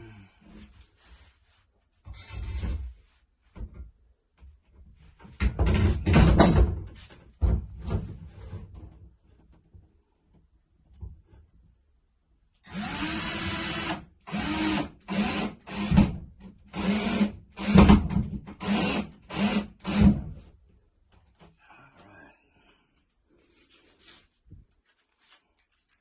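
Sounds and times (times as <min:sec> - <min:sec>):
power drill driving a screw: 0:12.7 - 0:16.1, 0:16.7 - 0:18.0, 0:18.6 - 0:20.2.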